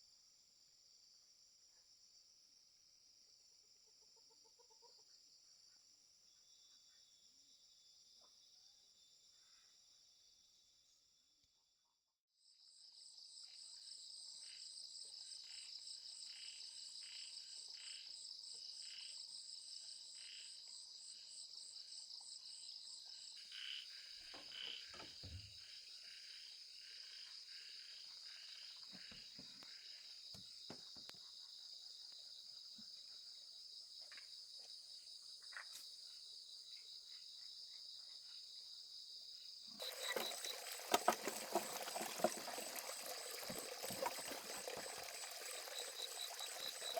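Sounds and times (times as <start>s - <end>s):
crickets trilling: 39.0s - 46.9s
water pouring or splashing: 39.8s - 46.9s.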